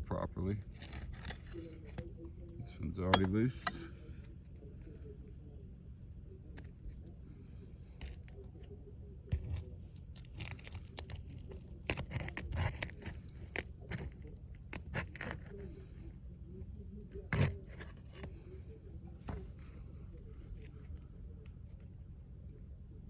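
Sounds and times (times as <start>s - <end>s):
shingles crackling and tearing: 9.3s - 15.5s.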